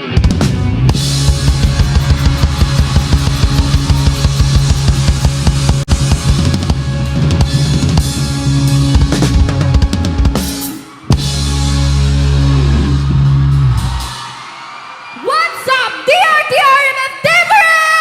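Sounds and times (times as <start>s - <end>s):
bass notes: 0.0s - 14.0s
drum kit: 0.0s - 14.4s
rock band playing: 0.0s - 15.1s.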